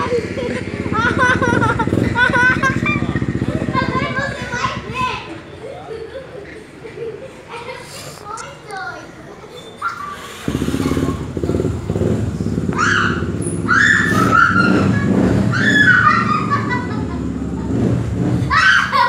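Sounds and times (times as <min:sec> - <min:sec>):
motorcycle engine running: 0:00.0 - 0:05.6, 0:10.3 - 0:18.6.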